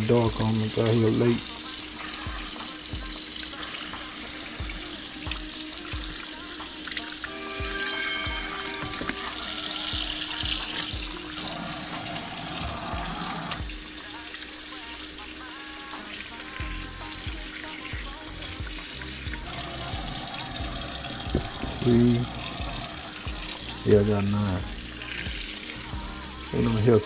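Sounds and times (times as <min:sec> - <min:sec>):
background music with steady beat: 0:00.0 - 0:27.0
tap running into sink: 0:21.0 - 0:23.5.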